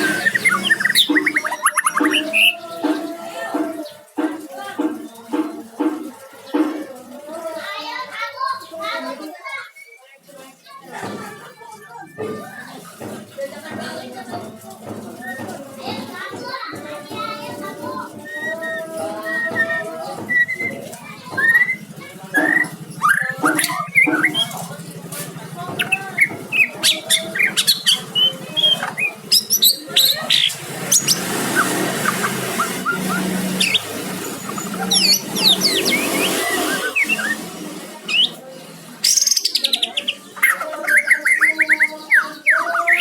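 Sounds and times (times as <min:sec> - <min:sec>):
songbird whistling and chirping: 0:00.0 - 0:04.0, 0:09.6 - 0:10.2, 0:18.1 - 0:24.7, 0:25.8 - 0:38.4, 0:39.0 - 0:43.0.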